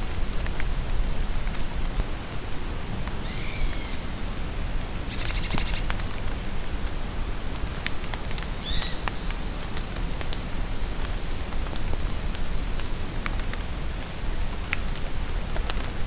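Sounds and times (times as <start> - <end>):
steady rain: 0.0 - 16.0
songbirds calling: 2.0 - 4.3, 5.1 - 7.2, 8.4 - 9.7.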